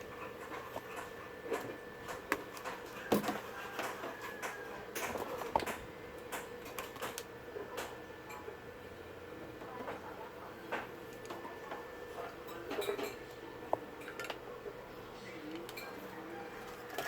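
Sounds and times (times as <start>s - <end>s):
faint steady hum: 0.0s - 17.0s
tools clicking and knocking: 0.4s - 7.2s.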